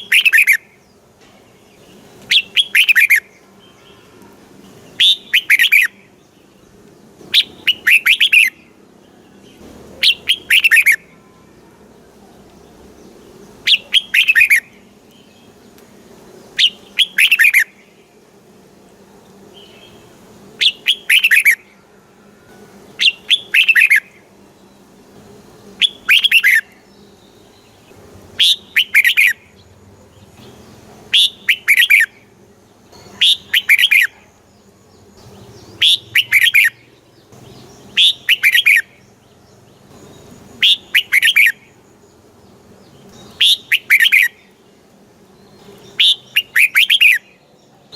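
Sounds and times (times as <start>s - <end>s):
bird singing short loud phrases: 0.0s - 0.8s, 1.8s - 4.1s, 4.9s - 6.0s, 7.3s - 8.6s, 10.0s - 11.1s, 13.6s - 15.5s, 16.6s - 17.9s, 20.6s - 21.7s, 23.0s - 24.2s, 25.8s - 27.7s, 28.4s - 29.5s, 30.4s - 32.3s, 32.9s - 34.4s, 35.2s - 39.1s, 39.9s - 41.8s, 43.1s - 44.6s, 45.5s - 47.7s.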